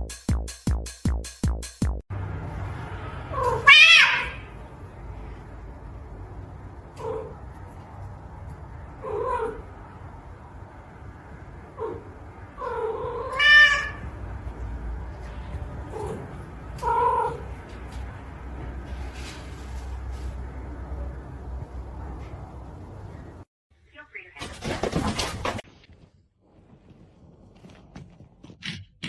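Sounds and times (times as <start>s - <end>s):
cat meowing: 3.3s - 4.5s, 12.6s - 14.1s.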